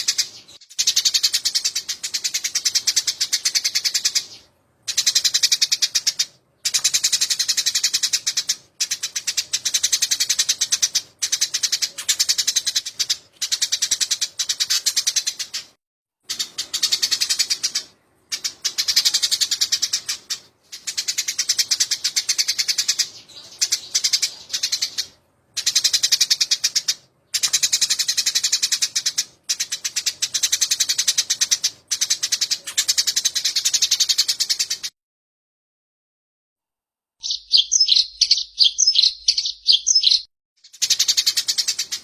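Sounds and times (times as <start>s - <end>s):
sparrows chirping chatter: 0.0s - 34.9s, 37.2s - 42.0s.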